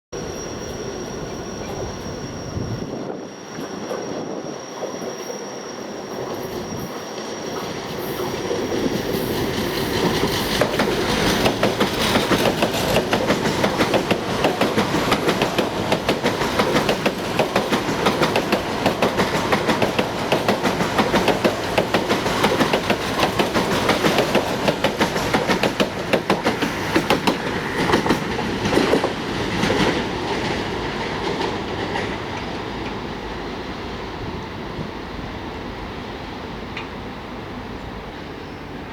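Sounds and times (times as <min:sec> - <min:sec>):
train wheels clattering over rail joints: 0:08.3 - 0:33.0.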